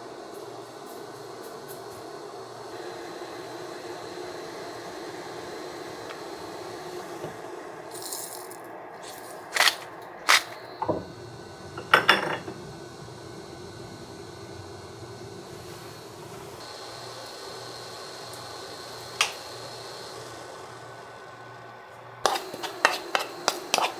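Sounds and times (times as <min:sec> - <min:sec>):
kitchenware clinking: 0:11.8 - 0:12.6, 0:22.3 - 0:23.9.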